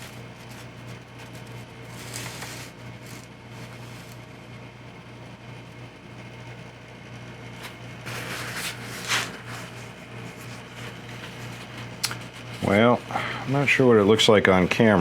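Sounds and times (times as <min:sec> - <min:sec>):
rustling and handling noises: 0:00.0 - 0:04.3, 0:07.6 - 0:15.0
low electrical hum: 0:00.0 - 0:15.0.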